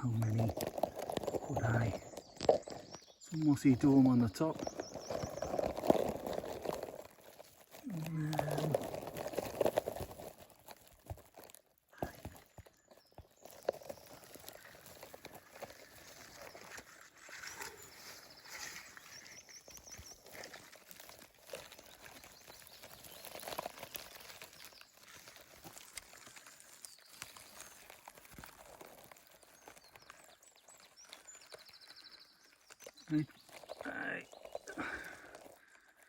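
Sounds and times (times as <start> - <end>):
soft footsteps: 0.0 - 7.9
rustling of vegetation: 0.0 - 36.0
small bird song: 0.0 - 36.0.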